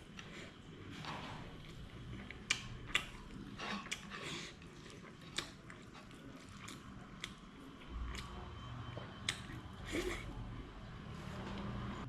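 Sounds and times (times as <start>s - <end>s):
person chewing: 1.6s - 8.4s, 9.2s - 10.4s.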